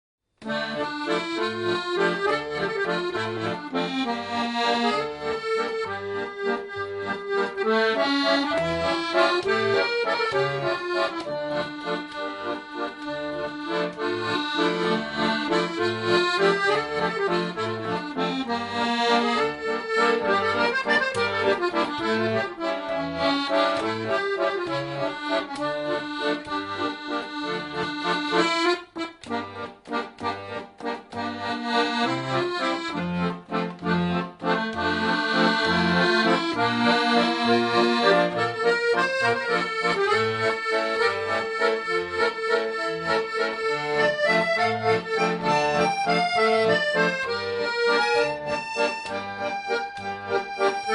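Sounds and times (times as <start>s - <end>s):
accordion music with bouncing bass: 0.3s - 50.9s.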